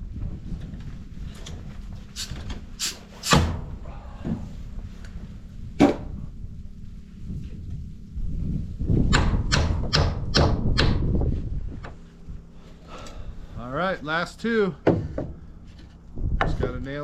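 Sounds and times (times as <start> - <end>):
nails hammered into wood: 9.1 - 11.0.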